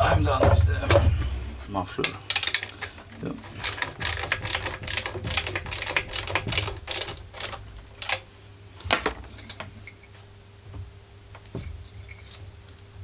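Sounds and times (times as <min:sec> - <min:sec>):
ratchet wrench clicking: 0:02.3 - 0:08.2.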